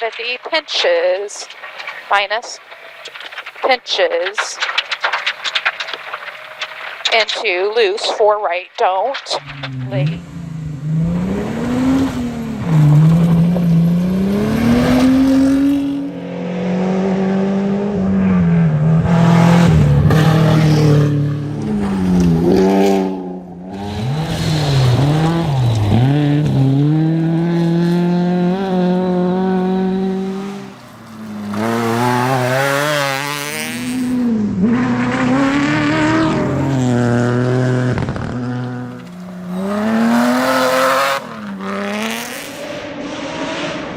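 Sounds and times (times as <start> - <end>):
rally car engine revving: 9.4 - 43.9.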